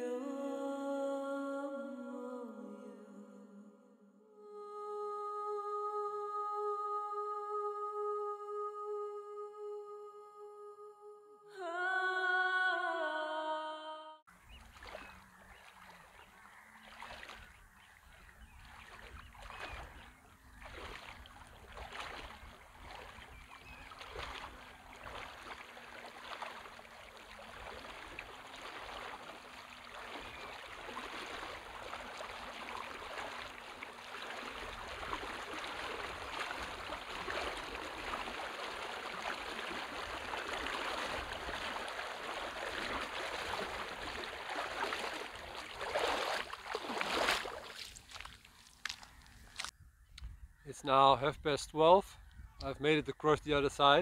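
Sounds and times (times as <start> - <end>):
footsteps splashing through water: 14.3 - 49.8.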